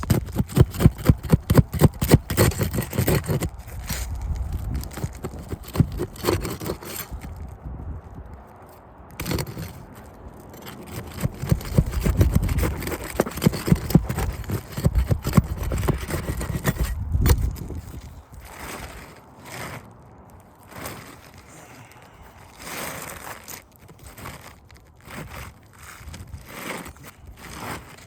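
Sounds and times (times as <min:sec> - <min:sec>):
shingle scraping and rustling: 0:00.0 - 0:28.0.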